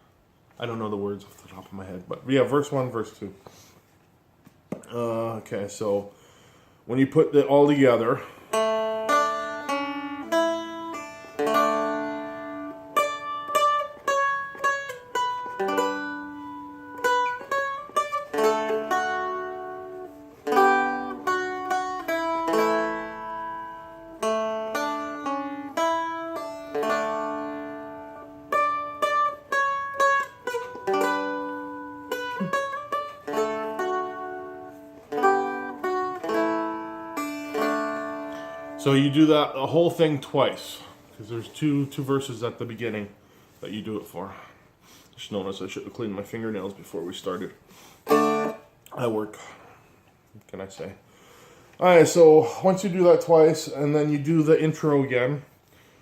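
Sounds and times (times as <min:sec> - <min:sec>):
string strums: 0:07.3 - 0:43.0, 0:45.4 - 0:49.5
plucked string melody: 0:08.4 - 0:39.4, 0:48.0 - 0:48.8.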